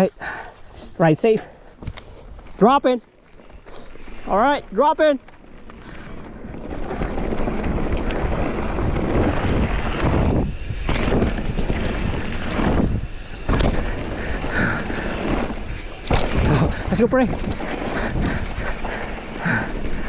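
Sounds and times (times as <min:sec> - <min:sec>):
wind rushing over microphone: 0:05.7 - 0:20.0.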